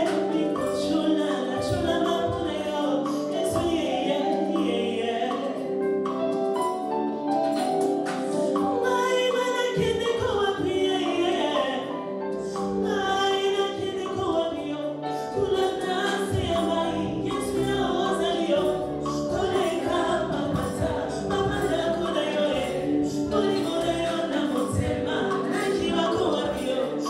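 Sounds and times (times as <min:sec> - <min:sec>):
group singing gospel: 0:00.0 - 0:05.8, 0:07.9 - 0:27.0
instrumental backing: 0:00.0 - 0:27.0.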